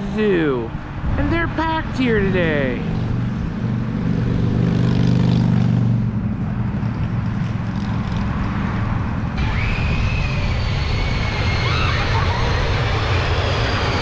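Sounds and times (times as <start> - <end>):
steady droning hum: 0.0 - 3.8
wind buffeting microphone: 0.0 - 4.8.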